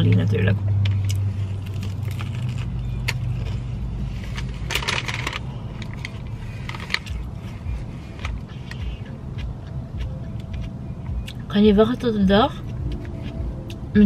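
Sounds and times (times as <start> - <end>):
sandwich being chewed: 0.9 - 11.4, 12.6 - 13.9
crunchy crackle: 1.0 - 9.1
mouth and lip clicks: 8.1 - 11.5.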